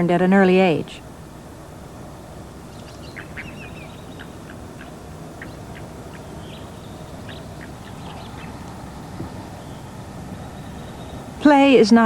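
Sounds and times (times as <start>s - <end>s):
low background rumble: 0.0s - 12.0s
animal squeaks and chirps: 2.7s - 8.6s.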